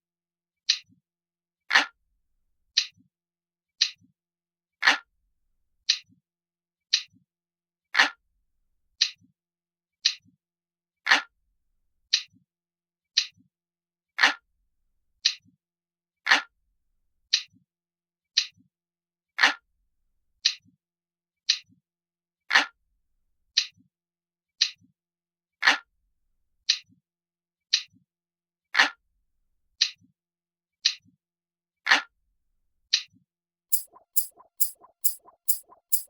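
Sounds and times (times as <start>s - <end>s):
clock ticking: 33.7s - 36.0s.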